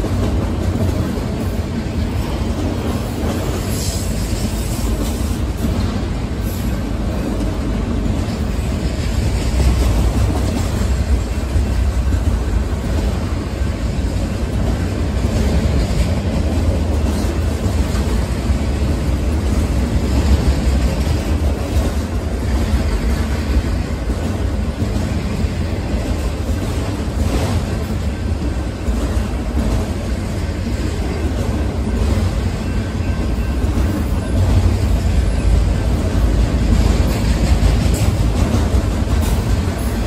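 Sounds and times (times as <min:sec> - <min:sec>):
freight train passing: 0:00.0 - 0:40.0.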